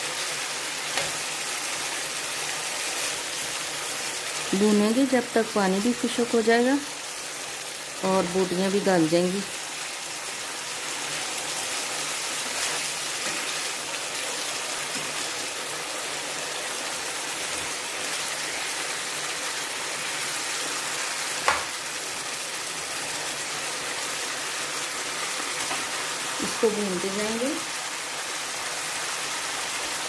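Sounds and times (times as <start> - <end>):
chicken sizzling in a pan: 0.0 - 30.0
sharp knock: 21.4 - 21.7.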